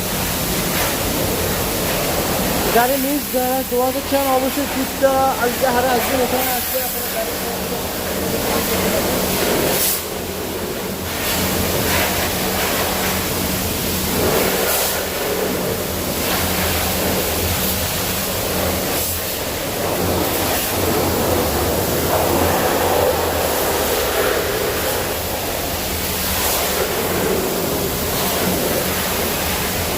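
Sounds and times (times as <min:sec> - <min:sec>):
low steady hum: 0:00.0 - 0:29.9
water jet spraying hiss: 0:00.0 - 0:29.9.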